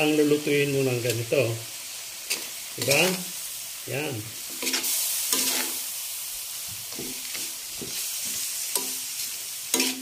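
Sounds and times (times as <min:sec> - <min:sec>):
chicken feet sizzling in pan: 0:00.0 - 0:10.0
spatula scraping pan: 0:04.4 - 0:05.9, 0:06.9 - 0:10.0.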